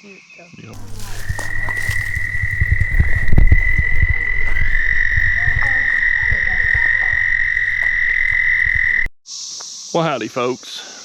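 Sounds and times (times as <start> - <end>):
low rapid frog croaks: 0.8 - 9.1
high-pitched frog trill: 0.9 - 9.1.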